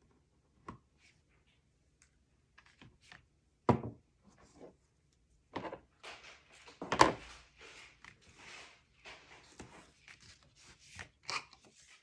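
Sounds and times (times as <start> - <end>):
paper rustling and scraping: 5.9 - 12.0.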